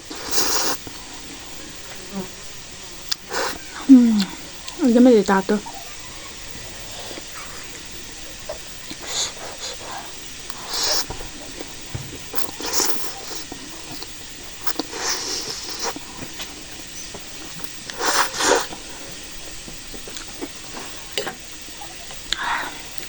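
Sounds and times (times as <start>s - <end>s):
noodle slurping: 0.0s - 1.0s, 8.9s - 16.6s, 17.6s - 18.9s.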